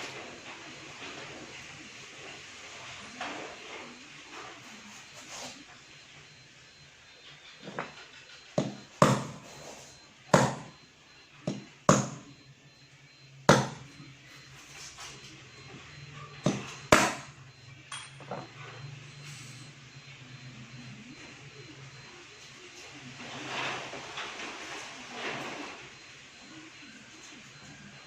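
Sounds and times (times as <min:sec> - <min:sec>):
hammer tapping: 0:08.6 - 0:09.4, 0:13.5 - 0:13.8, 0:16.5 - 0:17.3.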